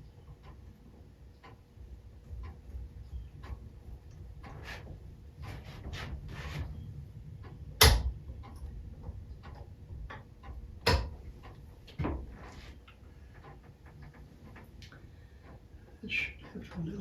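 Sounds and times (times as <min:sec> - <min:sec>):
tools clicking and tapping: 0:07.4 - 0:15.6
sharp knock: 0:07.8 - 0:08.1, 0:10.8 - 0:11.2.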